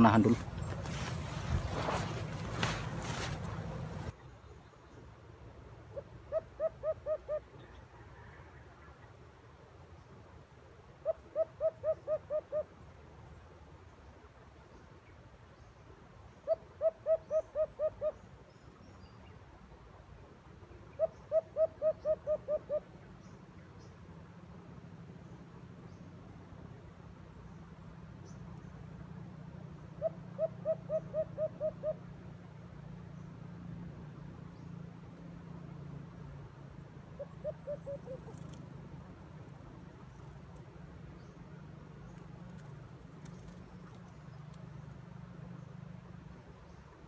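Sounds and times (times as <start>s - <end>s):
low hum: 0.0s - 6.3s
bird calling low notes: 29.9s - 32.2s, 37.2s - 38.6s.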